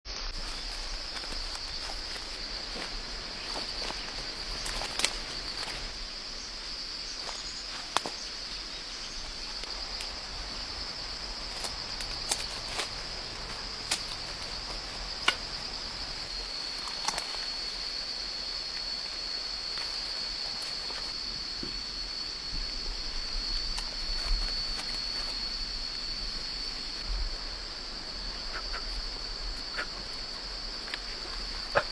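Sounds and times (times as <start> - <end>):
insects chorus: 0.1 - 31.9
sharp snaps and clicks: 16.8 - 17.4.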